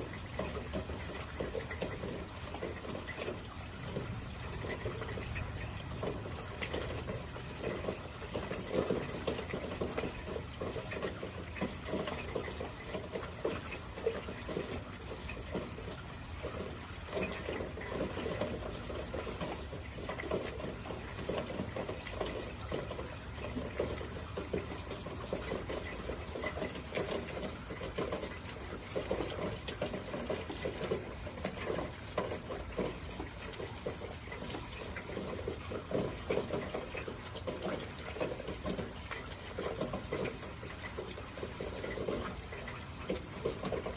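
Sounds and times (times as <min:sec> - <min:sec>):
water running and splashing: 0:00.0 - 0:43.9.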